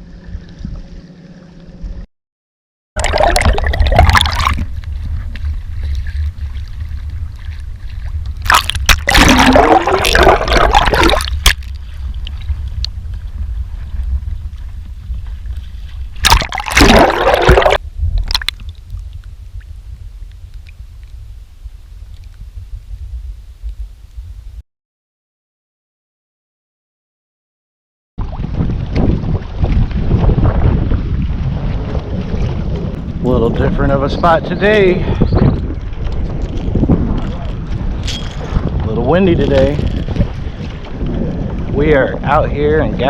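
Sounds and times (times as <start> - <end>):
water sloshing against kayak hull: 3.0 - 18.8, 28.2 - 33.0, 35.4 - 42.3
steady low rumble: 3.0 - 24.6.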